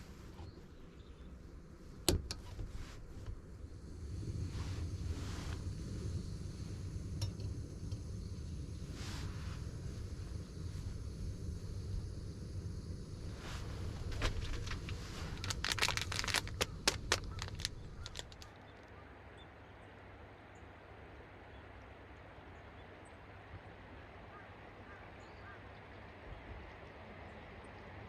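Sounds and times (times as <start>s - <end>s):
faint bird chirps: 0.4s - 1.5s, 16.1s - 23.2s, 24.1s - 27.9s.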